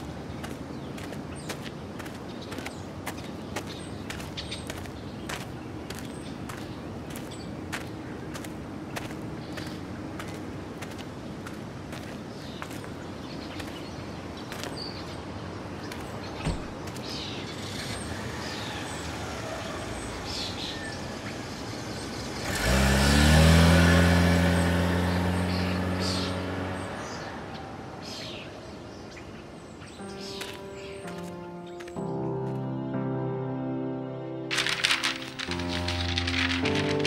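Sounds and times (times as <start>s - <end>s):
birds chirping: 0.0s - 33.3s
street ambience: 0.0s - 37.0s
car engine: 18.5s - 27.6s, 34.5s - 37.0s.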